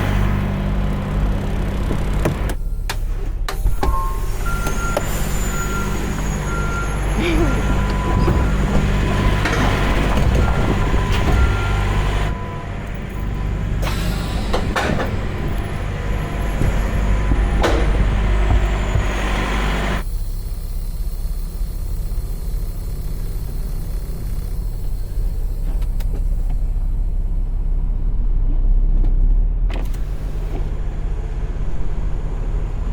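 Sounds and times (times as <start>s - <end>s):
truck diesel engine running: 0.0s - 32.9s
reversing beeps: 3.6s - 15.8s.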